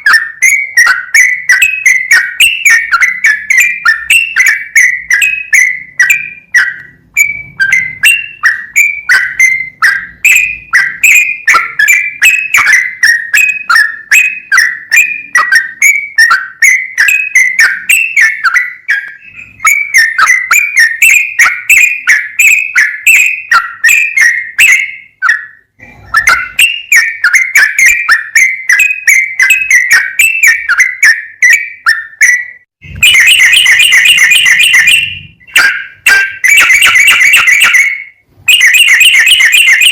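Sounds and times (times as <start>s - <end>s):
bird singing whistled notes: 0.0s - 39.9s
buzzy bird trill: 0.0s - 39.9s.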